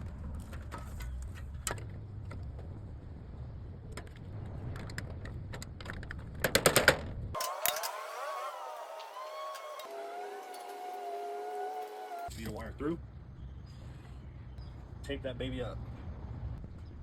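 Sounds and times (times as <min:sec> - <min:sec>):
steady low rumble: 0:00.0 - 0:06.3.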